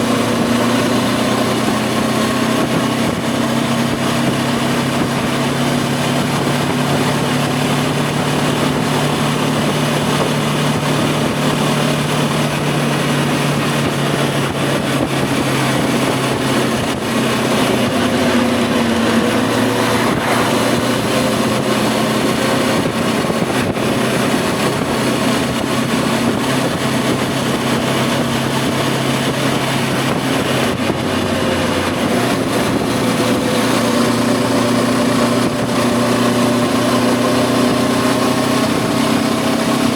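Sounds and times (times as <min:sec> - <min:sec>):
motorcycle engine running: 0:00.0 - 0:39.9
rushing wind noise: 0:00.0 - 0:39.9.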